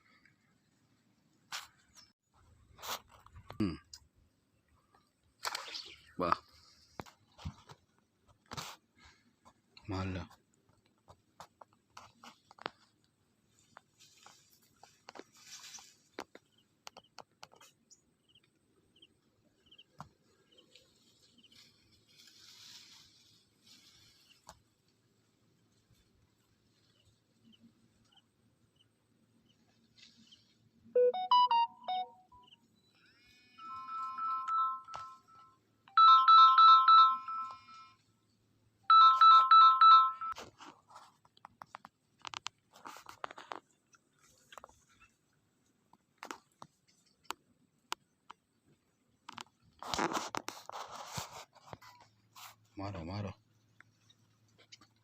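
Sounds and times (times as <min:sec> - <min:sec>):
small bird chirping: 0:16.4 - 0:22.2, 0:32.3 - 0:33.2
electronic phone ringtone warble: 0:31.0 - 0:32.3, 0:33.6 - 0:38.0, 0:38.9 - 0:40.4.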